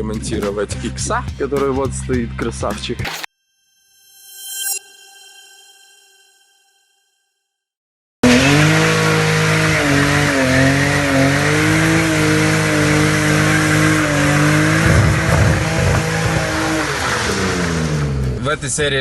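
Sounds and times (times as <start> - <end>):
car engine revving high: 8.2 - 18.4.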